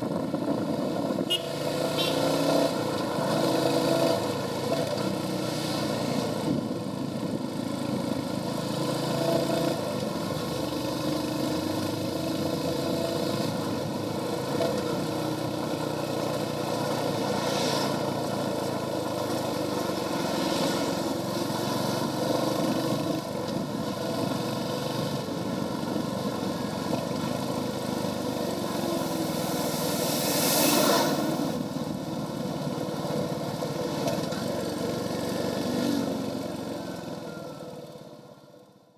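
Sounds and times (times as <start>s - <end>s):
motorcycle engine running: 18.0s - 38.8s
whooshes: 29.0s - 31.7s.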